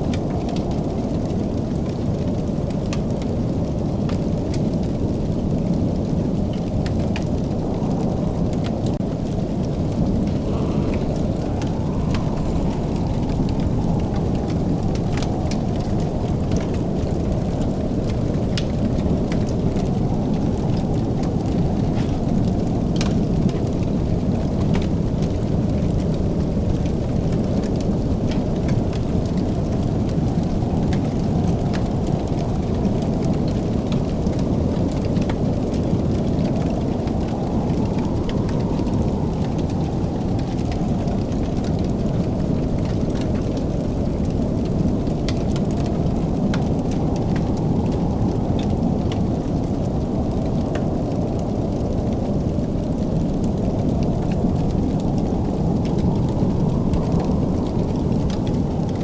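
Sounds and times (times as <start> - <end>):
fire crackling: 0.1 - 59.0
low rumble: 7.4 - 24.8.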